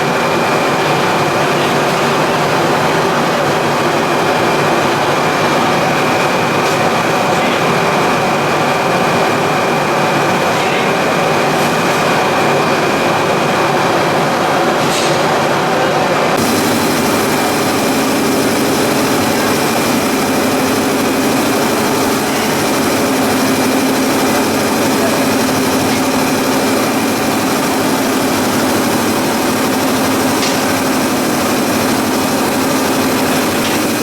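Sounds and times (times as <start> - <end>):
machinery running: 15.4 - 34.0
high steady whine: 16.4 - 34.0.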